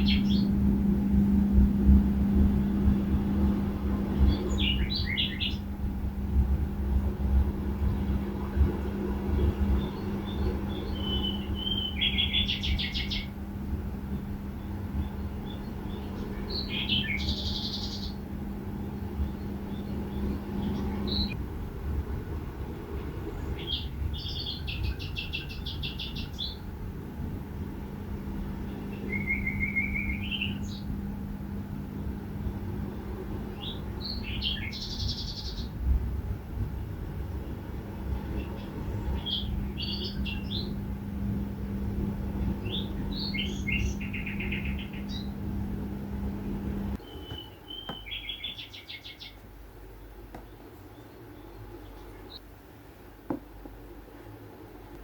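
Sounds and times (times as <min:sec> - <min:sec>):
bird chirping: 0:00.0 - 0:00.6, 0:04.3 - 0:05.6, 0:09.8 - 0:13.3, 0:14.6 - 0:18.2, 0:23.6 - 0:26.6, 0:28.7 - 0:30.9, 0:33.6 - 0:35.7, 0:38.4 - 0:40.8, 0:42.6 - 0:45.4, 0:47.0 - 0:49.4
songbird trill: 0:00.0 - 0:01.5, 0:02.2 - 0:05.7, 0:09.3 - 0:13.4, 0:14.0 - 0:21.4, 0:23.4 - 0:26.6, 0:28.6 - 0:31.0, 0:32.8 - 0:35.8, 0:38.3 - 0:40.9, 0:42.3 - 0:45.7, 0:46.4 - 0:52.4
low hum and rumble: 0:00.0 - 0:55.0.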